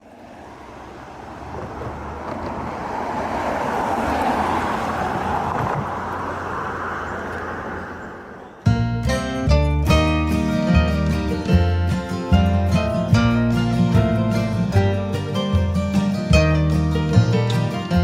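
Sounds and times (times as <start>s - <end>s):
passing vehicle rush: 0.0s - 18.0s
acoustic guitar music: 8.6s - 18.0s.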